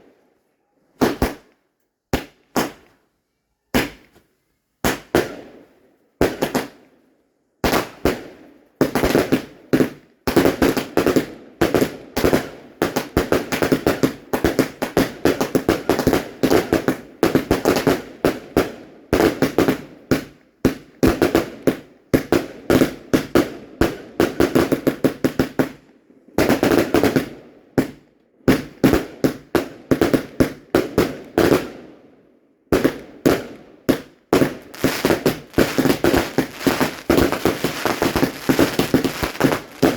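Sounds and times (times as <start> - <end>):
fireworks rapid bangs: 32.7 - 39.9.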